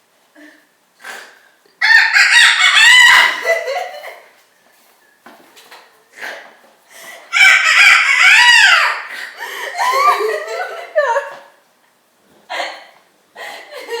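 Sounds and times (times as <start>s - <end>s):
young women laughing: 1.9s - 4.4s, 7.3s - 11.6s, 13.4s - 14.0s.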